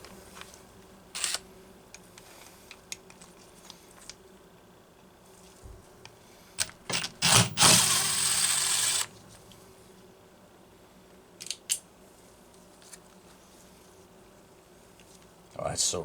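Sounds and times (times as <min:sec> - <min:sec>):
tools clicking and scraping: 0:01.2 - 0:01.4, 0:06.6 - 0:09.1.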